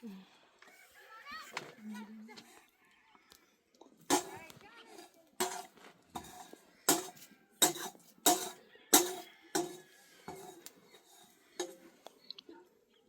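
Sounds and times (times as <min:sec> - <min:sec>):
metal utensil knocking on pot: 0:04.1 - 0:11.8.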